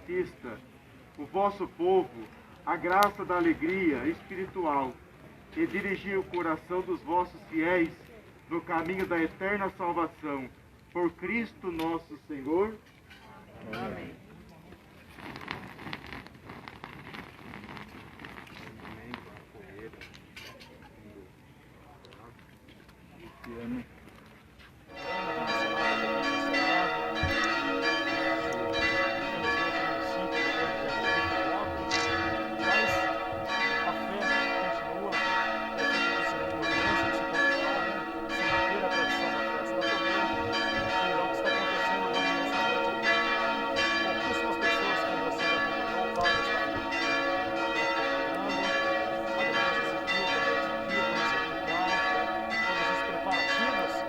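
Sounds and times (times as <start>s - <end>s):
church bells pealing: 24.9s - 54.0s.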